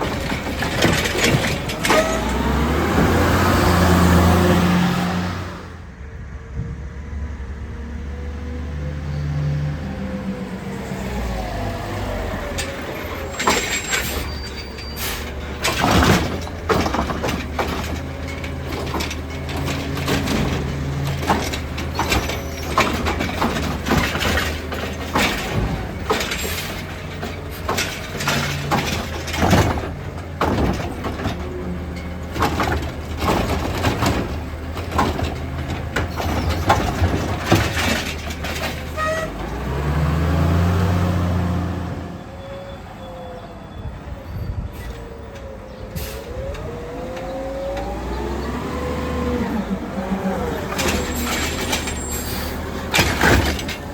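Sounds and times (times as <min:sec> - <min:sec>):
sharp knocks and clatters: 0:00.0 - 0:03.0, 0:15.4 - 0:39.4, 0:50.7 - 0:53.9
garbage truck engine running: 0:00.0 - 0:06.1, 0:09.8 - 0:42.2, 0:45.6 - 0:53.9.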